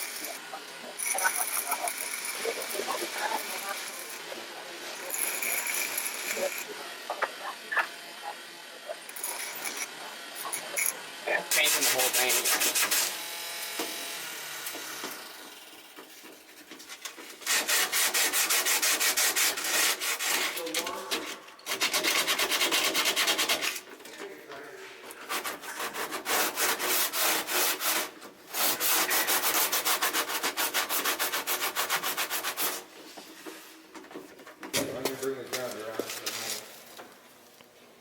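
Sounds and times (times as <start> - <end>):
hand scraping strokes: 1.0 - 6.7, 16.1 - 20.8, 24.8 - 33.8.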